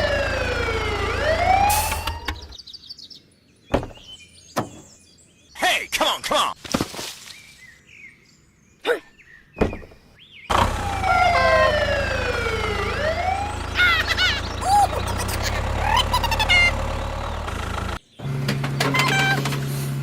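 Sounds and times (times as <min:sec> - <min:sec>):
siren wailing: 0:00.0 - 0:02.5, 0:10.6 - 0:15.1
low engine hum: 0:00.0 - 0:02.6, 0:10.5 - 0:20.0.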